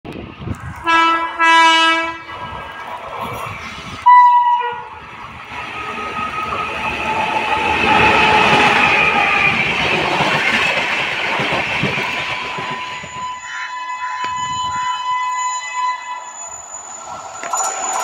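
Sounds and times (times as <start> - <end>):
train running on rails: 0.1 - 18.0
locomotive horn blasts: 0.8 - 2.3, 4.0 - 4.9, 12.7 - 16.3.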